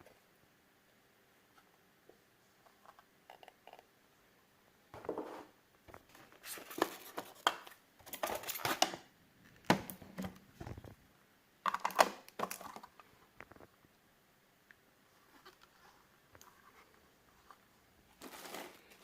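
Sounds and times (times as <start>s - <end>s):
plastic wrap crinkling: 18.2s - 19.0s.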